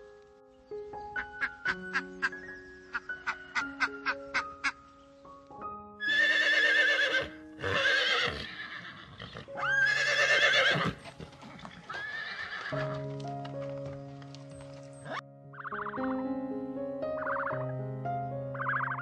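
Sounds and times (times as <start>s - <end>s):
light background music: 0.0s - 19.0s
horse neighing: 6.0s - 11.0s, 11.9s - 12.9s.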